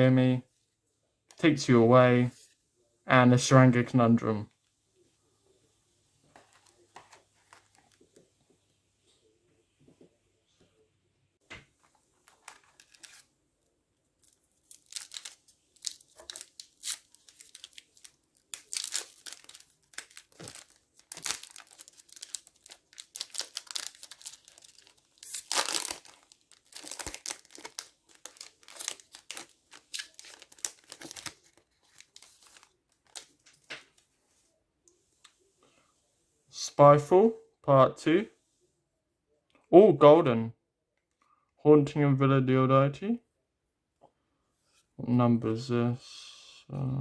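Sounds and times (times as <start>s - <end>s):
wrapper tearing and crinkling: 12.3s - 13.3s, 14.2s - 33.5s.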